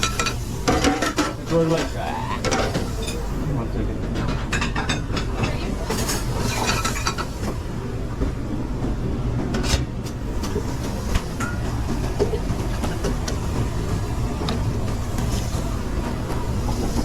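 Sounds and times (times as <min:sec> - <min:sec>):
pans and utensils clanking: 0:00.0 - 0:03.4, 0:04.0 - 0:07.6
low rumble of ventilation: 0:00.0 - 0:17.0.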